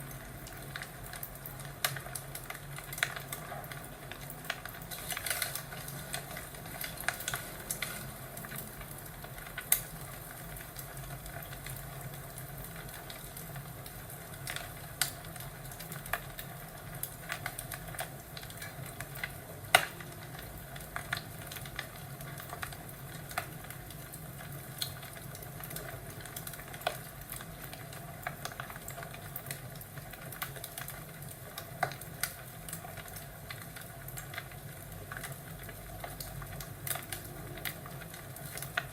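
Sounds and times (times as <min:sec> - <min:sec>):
wood fire crackling: 0:00.0 - 0:38.9
sharp pops and snaps: 0:17.2 - 0:20.3.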